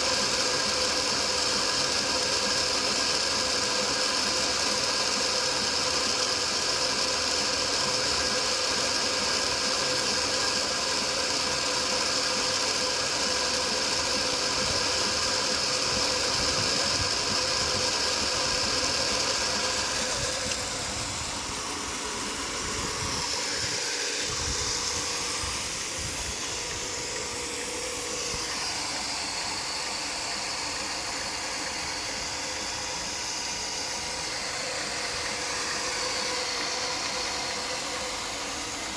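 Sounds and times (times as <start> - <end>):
pump motor humming with whine: 0.0 - 38.9.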